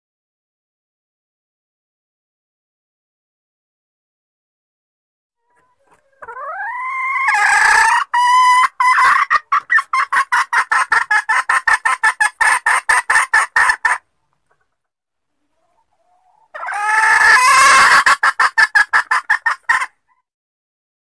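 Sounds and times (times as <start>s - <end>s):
hen calling with clucks: 5.4s - 14.7s, 15.4s - 20.2s.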